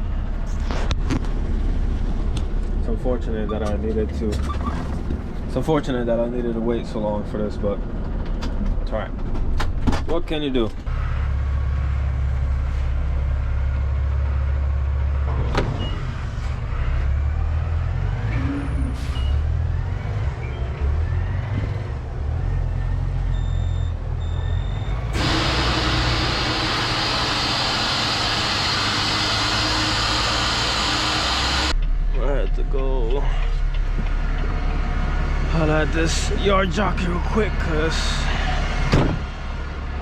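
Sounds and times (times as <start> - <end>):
diesel truck engine idling: 20.5 - 40.0
short beeps: 23.3 - 25.0
loud steady hiss: 25.2 - 31.7.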